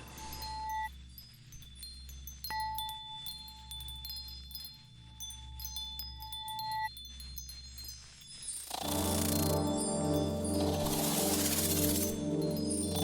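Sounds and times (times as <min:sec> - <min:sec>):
chime-like bell tones: 0:00.0 - 0:13.0
low pulsing drone: 0:08.8 - 0:13.0.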